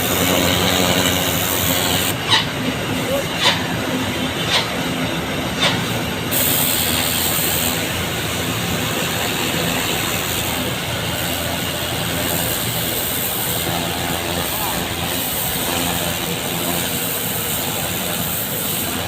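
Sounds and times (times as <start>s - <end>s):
motor humming: 0.0s - 19.0s
hose spraying water: 5.6s - 19.0s.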